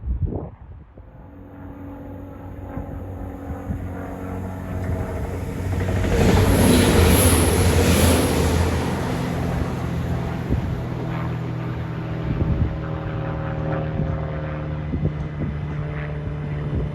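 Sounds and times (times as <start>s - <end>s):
train passing close by: 1.1s - 12.8s.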